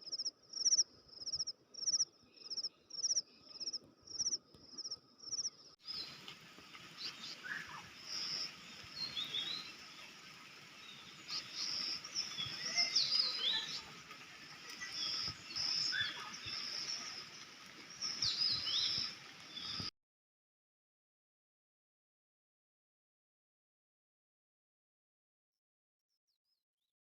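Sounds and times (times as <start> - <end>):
birds chirping and calling: 0.0 - 19.9
steady outdoor hiss: 0.0 - 19.9.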